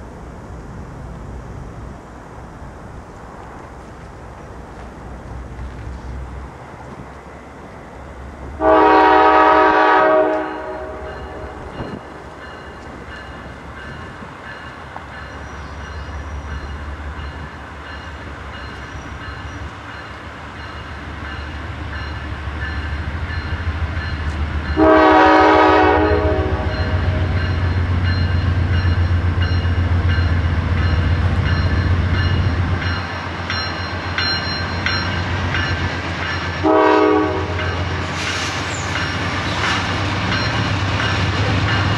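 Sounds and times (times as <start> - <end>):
locomotive air horn blasts: 8.6 - 11.7, 24.8 - 27.4, 36.6 - 37.8.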